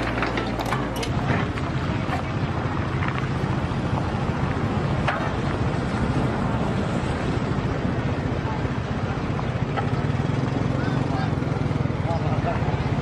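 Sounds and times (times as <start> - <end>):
wind noise on microphone: 0.0 - 10.3
excavator engine running: 0.0 - 13.0.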